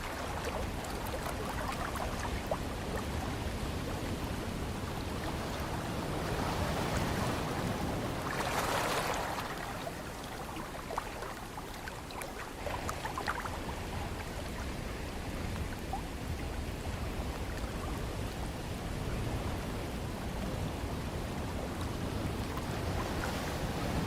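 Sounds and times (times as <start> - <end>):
low rumble of wind: 0.0 - 24.0
ocean surf washing: 0.0 - 24.0
small crackles of water: 0.0 - 24.0.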